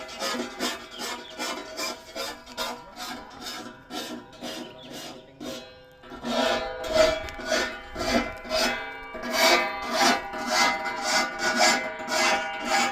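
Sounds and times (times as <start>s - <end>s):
file rasping on saw teeth: 0.0s - 12.9s
steady ringing tones: 5.5s - 12.9s.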